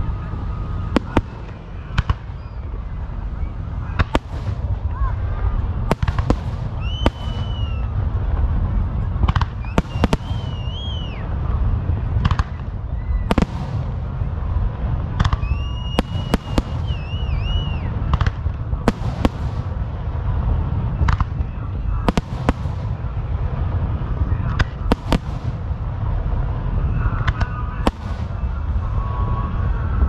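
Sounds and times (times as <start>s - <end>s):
fireworks bangs and cracks: 0.0s - 30.0s
low rumble: 0.0s - 30.0s
wavering high whistles: 6.7s - 8.0s, 9.6s - 11.4s, 15.3s - 18.1s.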